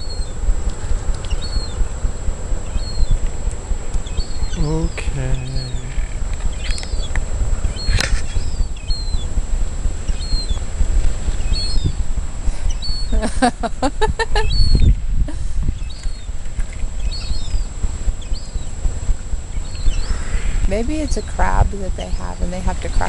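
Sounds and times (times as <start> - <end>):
small birds chirping: 0.0 - 13.5, 14.1 - 23.0
wind rumbling on microphone: 0.0 - 23.0
gull calling: 4.1 - 9.3, 11.4 - 14.9.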